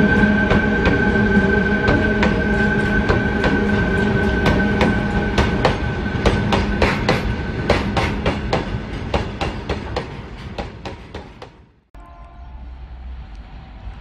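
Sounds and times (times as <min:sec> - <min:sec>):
locomotive whine and hum: 0:00.0 - 0:09.4, 0:12.0 - 0:14.0
train rumble: 0:00.0 - 0:14.0
train wheels clicking over rail joints: 0:01.8 - 0:11.8.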